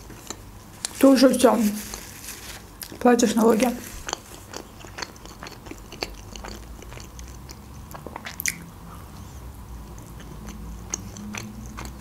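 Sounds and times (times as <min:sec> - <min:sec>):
chewing with wet mouth clicks: 0:00.0 - 0:01.0, 0:03.8 - 0:08.7, 0:09.8 - 0:12.0.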